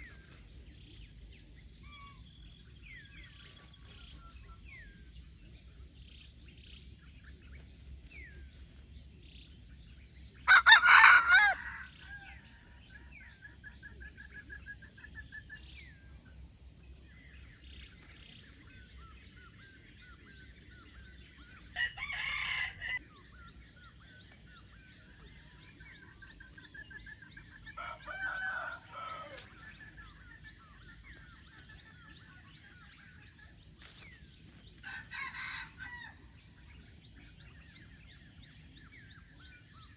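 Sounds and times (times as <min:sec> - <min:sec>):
rooster crowing: 0:10.5 - 0:12.7, 0:21.7 - 0:23.0, 0:27.8 - 0:29.5, 0:34.8 - 0:36.2.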